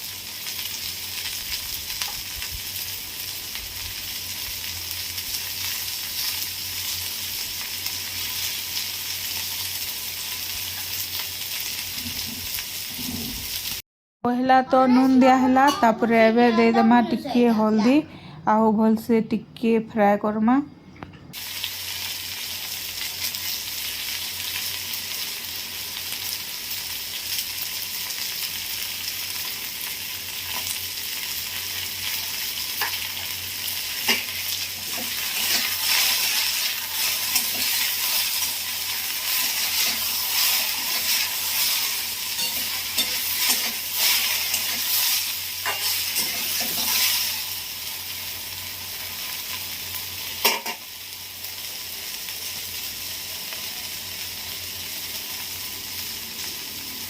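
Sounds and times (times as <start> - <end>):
okra sizzling in hot oil: 0.0 - 13.8, 21.3 - 57.0
spatula scraping a pan: 39.3 - 47.4.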